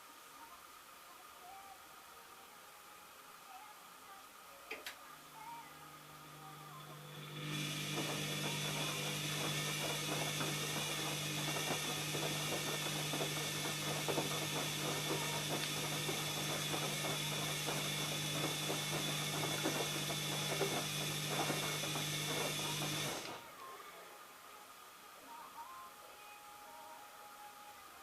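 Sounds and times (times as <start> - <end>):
washing machine motor hum: 5.1 - 23.6.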